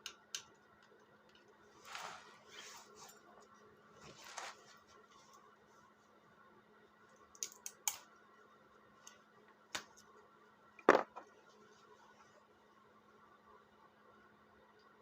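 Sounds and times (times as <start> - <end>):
faint steady hum: 0.0 - 15.0
hard objects clicking and knocking: 10.8 - 11.3.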